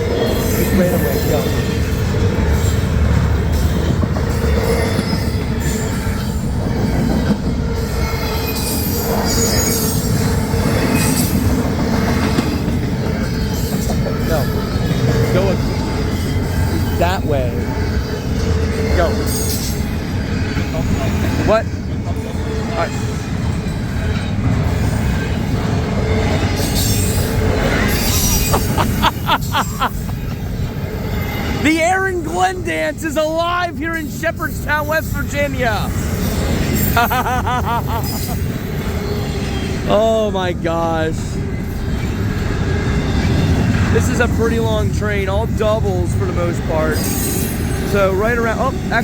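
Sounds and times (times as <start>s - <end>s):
high-pitched wheel squeal: 0.0s - 11.5s, 22.3s - 31.8s
train wheels rumbling on rail: 0.0s - 49.0s
short high wheel squeals: 8.0s - 10.3s, 26.5s - 28.8s.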